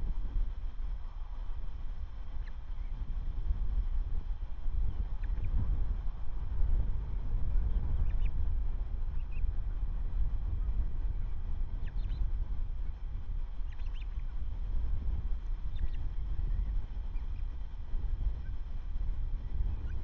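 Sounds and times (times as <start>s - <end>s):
wind rumbling on microphone: 0.0s - 20.0s
faint high bird calls: 5.0s - 5.6s, 7.9s - 8.4s, 9.1s - 9.5s, 11.2s - 12.3s, 13.6s - 14.4s, 15.6s - 17.6s.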